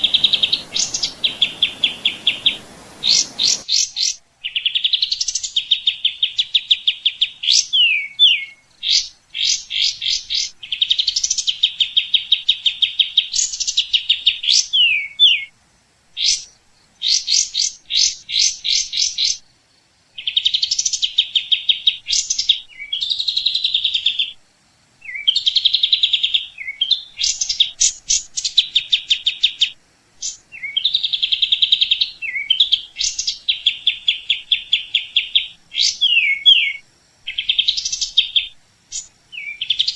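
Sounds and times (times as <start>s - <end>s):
songbird singing trills: 0.0s - 15.5s, 20.2s - 24.4s, 25.0s - 39.9s.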